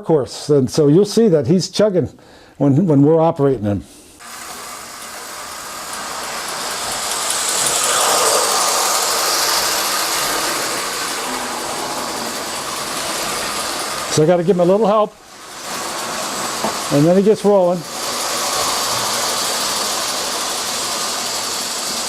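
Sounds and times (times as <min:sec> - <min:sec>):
model train running on track: 0:04.2 - 0:22.0.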